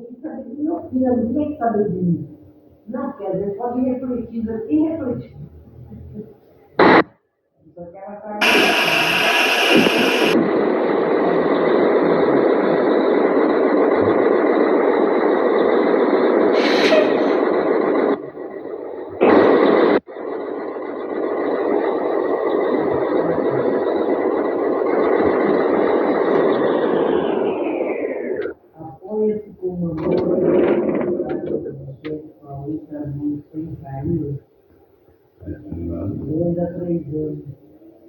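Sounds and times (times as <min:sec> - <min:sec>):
static hiss: 0:06.8 - 0:07.1, 0:08.4 - 0:29.3.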